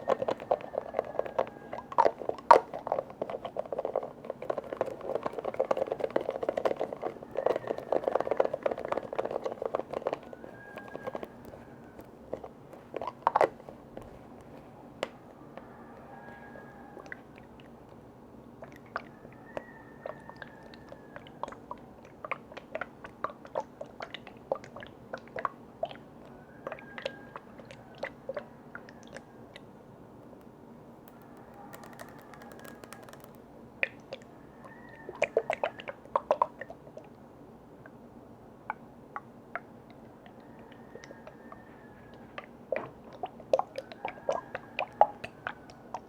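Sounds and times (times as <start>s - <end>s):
tapping and clicking on lids: 31.1s - 33.4s.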